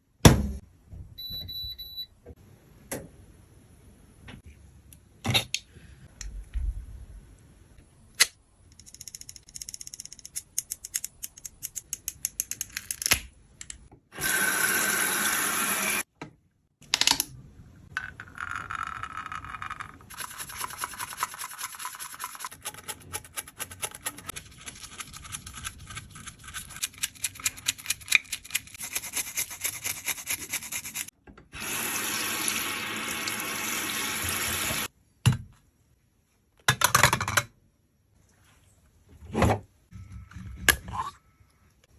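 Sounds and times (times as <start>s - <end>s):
tool scraping makeup powder: 28.6s - 31.1s.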